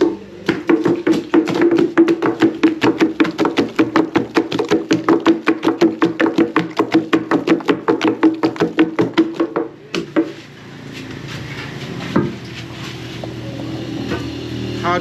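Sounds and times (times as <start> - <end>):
wooden pestles pounding in mortar: 0.0 - 10.5.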